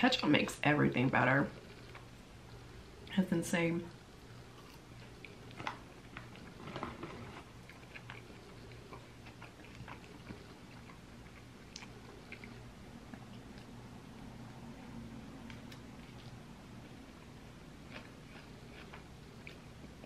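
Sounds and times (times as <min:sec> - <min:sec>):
steady low hum: 0:00.0 - 0:20.0
person chewing food: 0:01.5 - 0:03.1, 0:04.2 - 0:13.8, 0:15.4 - 0:20.0.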